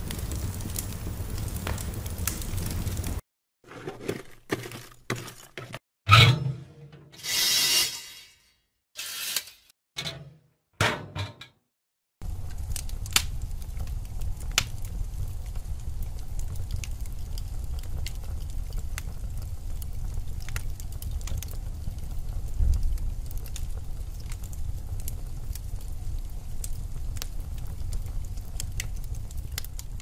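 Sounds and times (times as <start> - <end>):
fire flames rumbling: 0.0 - 3.2, 12.2 - 30.0
logs crackling and popping: 0.0 - 5.8, 12.2 - 30.0.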